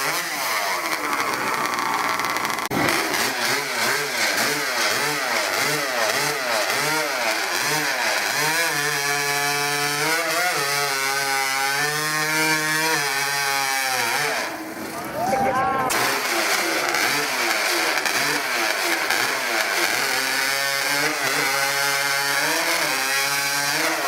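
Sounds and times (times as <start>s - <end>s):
racing chainsaw engine revving: 0.0s - 15.1s, 15.8s - 24.0s.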